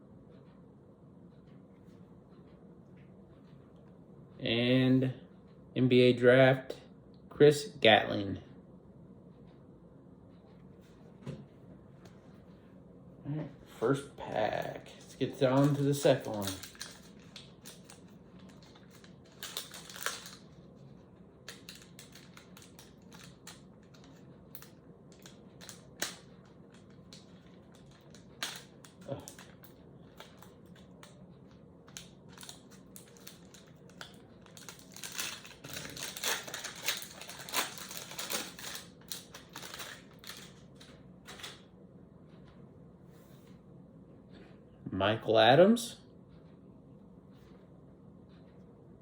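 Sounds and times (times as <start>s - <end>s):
wrapper tearing and crinkling: 15.0s - 20.5s, 21.4s - 30.8s, 31.9s - 40.6s.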